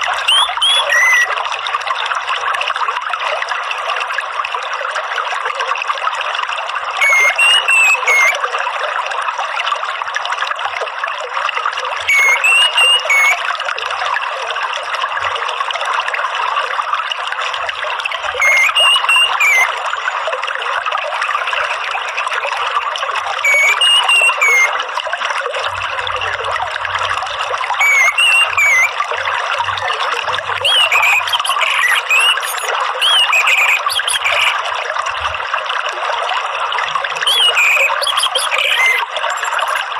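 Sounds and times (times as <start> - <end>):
trickling water: 0.0 - 39.9
thrush whistling: 0.2 - 1.4, 7.0 - 8.4, 12.1 - 13.4, 18.4 - 19.8, 23.4 - 24.7, 27.8 - 29.0, 30.6 - 34.6, 37.3 - 39.8.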